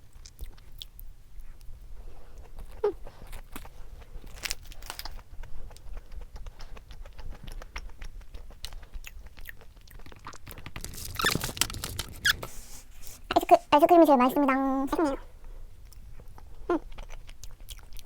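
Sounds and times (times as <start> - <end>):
chewing and mouth clicks: 0.0 - 1.7, 2.3 - 12.4, 15.8 - 18.0
rustling: 10.0 - 13.8.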